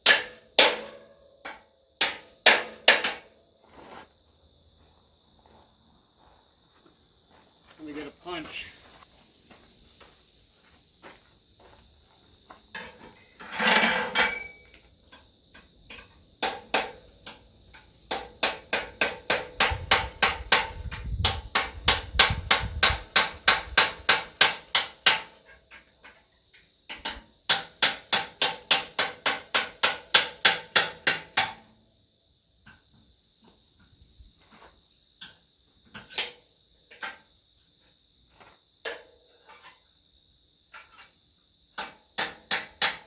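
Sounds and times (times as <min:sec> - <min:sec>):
hammer striking steel punch: 0:00.0 - 0:01.0, 0:02.0 - 0:03.2.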